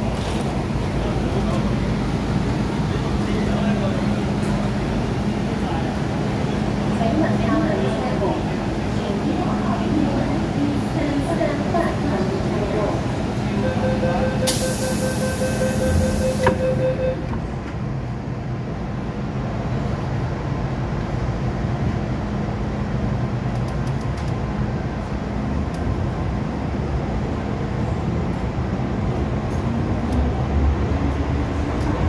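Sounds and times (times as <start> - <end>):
train motor whine: 14.0 - 17.0.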